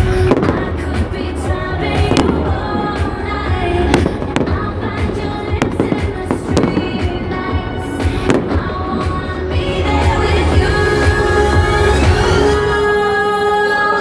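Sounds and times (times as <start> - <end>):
music playing: 0.0 - 14.0
fireworks bangs: 1.8 - 9.2.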